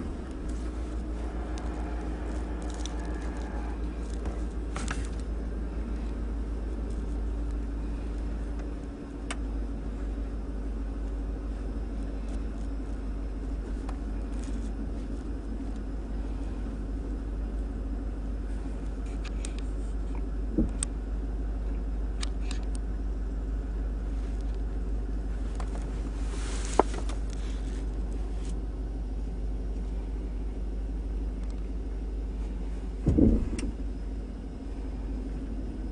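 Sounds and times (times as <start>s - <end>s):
truck engine and road rumble: 0.0s - 35.9s.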